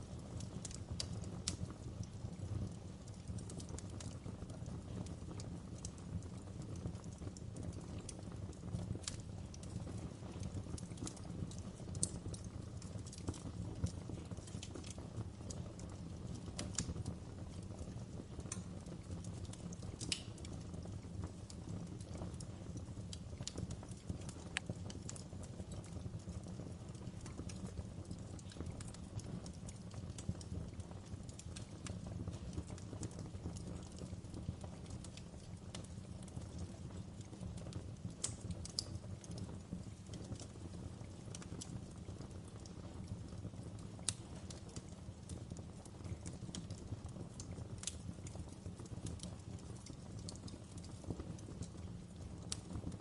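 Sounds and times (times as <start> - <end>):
fireplace fire crackling: 0.0 - 53.0.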